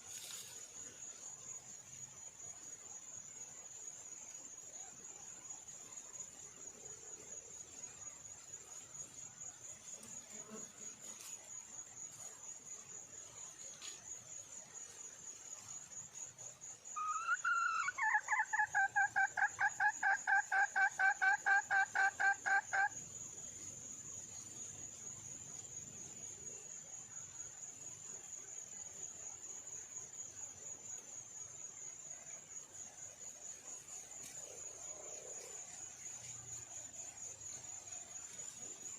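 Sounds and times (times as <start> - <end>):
high insect trill: 0.0 - 38.9
hen calling and clucking: 17.0 - 23.0.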